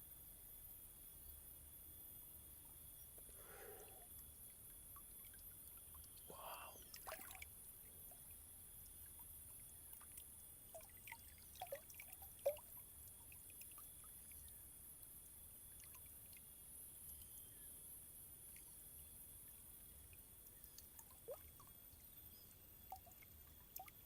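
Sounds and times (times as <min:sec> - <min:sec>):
faint high hiss: 0:00.0 - 0:11.2.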